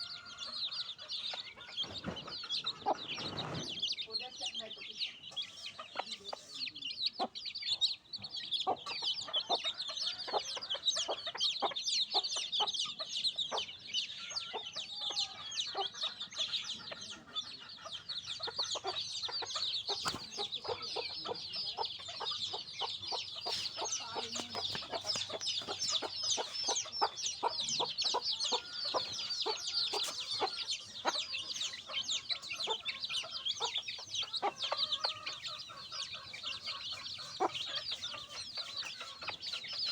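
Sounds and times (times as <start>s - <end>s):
baby chicks peeping: 0.0s - 39.9s
low clucks: 19.4s - 39.9s.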